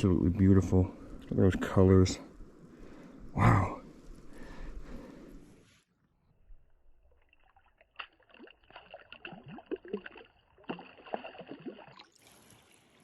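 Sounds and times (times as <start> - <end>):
water sloshing and plopping: 7.0 - 13.0.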